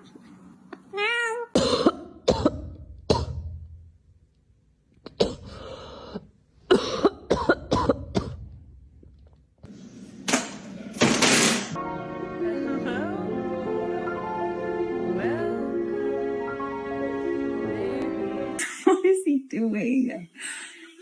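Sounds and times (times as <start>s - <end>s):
person coughing: 1.6s - 3.4s, 5.1s - 5.8s, 6.7s - 8.5s.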